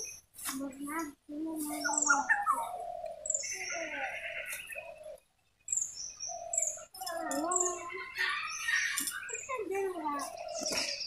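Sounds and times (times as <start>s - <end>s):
high bird chirps: 0.0s - 11.0s
gliding bird calls: 1.7s - 11.0s.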